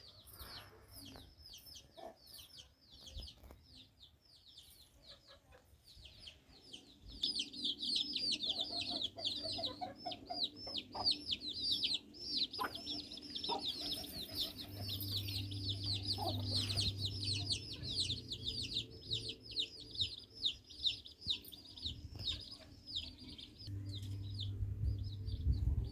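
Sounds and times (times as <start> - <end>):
small birds chirping: 0.0 - 25.9
low hum: 23.6 - 25.9.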